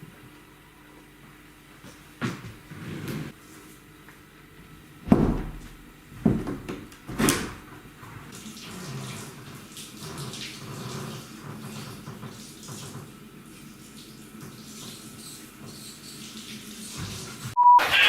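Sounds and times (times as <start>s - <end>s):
loud knocks: 5.0s - 7.7s
water running from a tap: 8.3s - 17.6s.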